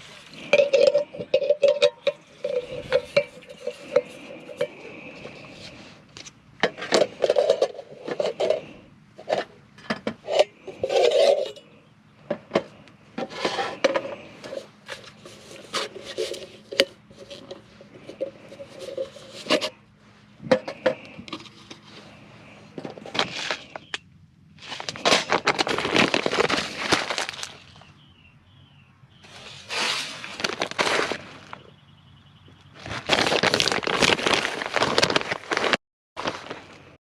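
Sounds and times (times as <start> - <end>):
metal cookware clinking and scraping: 0.0 - 4.8, 9.2 - 11.6.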